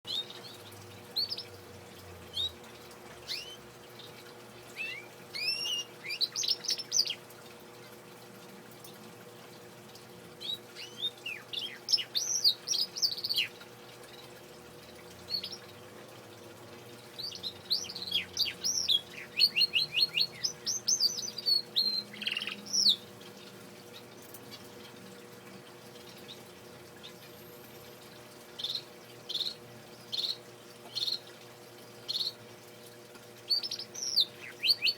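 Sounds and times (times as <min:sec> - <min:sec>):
canary singing: 0:00.1 - 0:01.7, 0:02.3 - 0:02.6, 0:03.2 - 0:07.3, 0:10.4 - 0:15.9, 0:17.1 - 0:25.0, 0:28.5 - 0:31.3, 0:32.0 - 0:32.4, 0:33.4 - 0:34.9.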